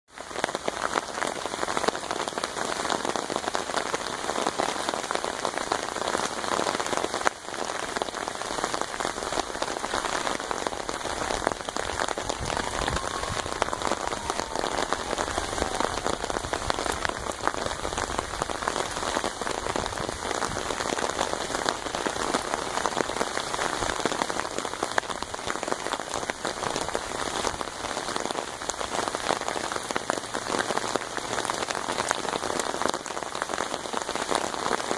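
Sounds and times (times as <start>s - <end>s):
rain drumming on an umbrella: 0.1s - 34.9s.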